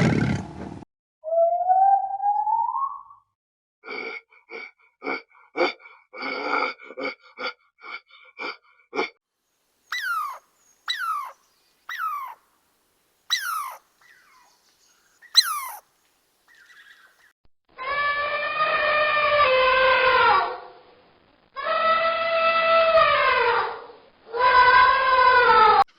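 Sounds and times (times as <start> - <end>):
animal calls falling in pitch: 15.4 - 15.8.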